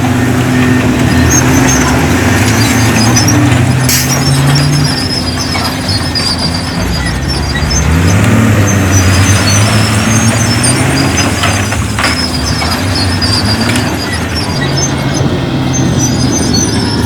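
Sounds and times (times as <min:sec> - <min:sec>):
heavy diesel engine under load: 0:00.0 - 0:17.0
thin high squeaks: 0:00.6 - 0:17.0.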